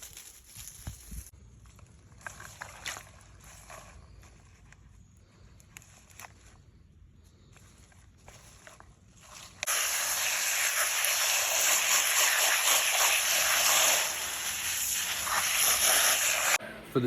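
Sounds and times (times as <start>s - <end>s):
faint handling sounds: 0.0s - 9.7s
tap water running: 9.7s - 16.6s.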